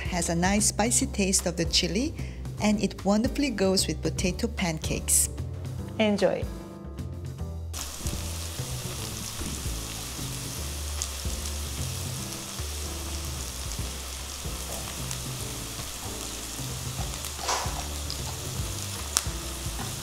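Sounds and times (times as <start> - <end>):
potato pancakes sizzling in oil: 7.7 - 20.0.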